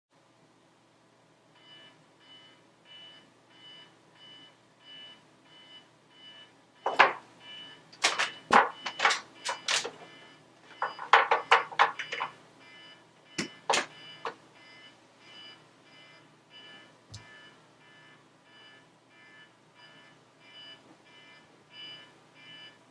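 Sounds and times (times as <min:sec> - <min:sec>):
alarm clock beeping: 0:01.6 - 0:22.8
objects knocking and thumping: 0:06.9 - 0:07.3, 0:08.0 - 0:10.1, 0:10.7 - 0:12.4, 0:13.4 - 0:14.4.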